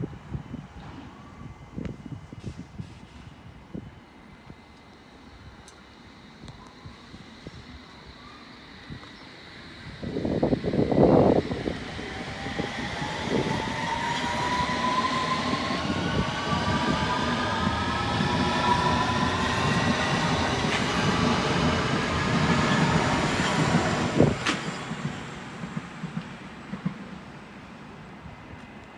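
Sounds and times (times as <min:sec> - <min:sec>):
train traction motors whining: 0:04.7 - 0:25.6.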